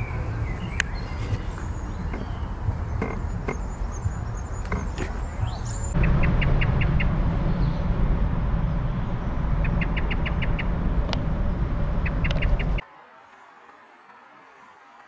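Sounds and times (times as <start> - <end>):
loud low rumbling: 0.0 - 12.8
bird calling high notes: 11.7 - 12.8.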